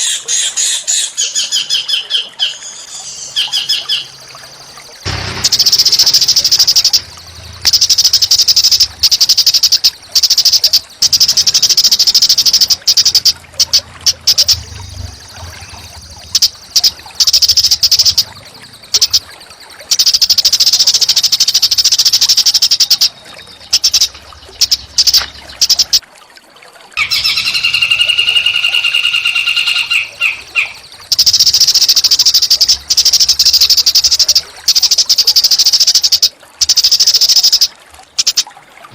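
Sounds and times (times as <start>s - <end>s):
songbird buzzing trills: 2.8s - 26.0s, 27.0s - 38.4s.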